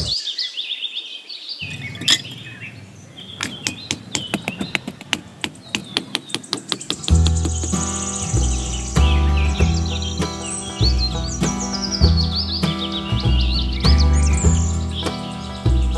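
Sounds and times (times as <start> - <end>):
birds chirping: 0.0 - 15.9
music with deep bass beat: 7.0 - 15.9.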